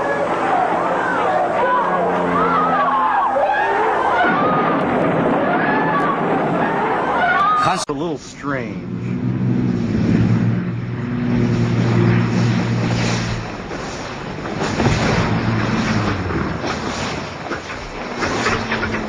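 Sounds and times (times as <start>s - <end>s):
aircraft engine drone: 0.0s - 19.0s.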